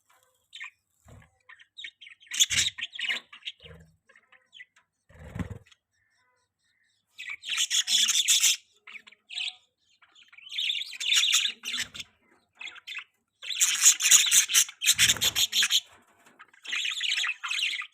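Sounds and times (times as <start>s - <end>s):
budgerigars chirping: 1.5s - 4.7s, 7.2s - 15.9s, 16.6s - 17.9s.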